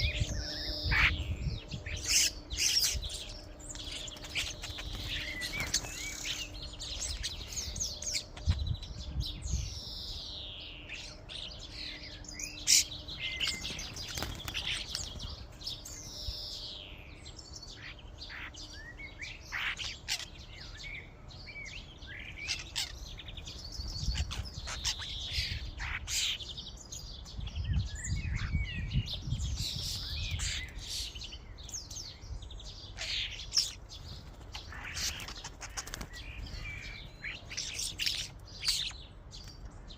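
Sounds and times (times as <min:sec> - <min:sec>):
starlings chattering: 0:00.0 - 0:39.9.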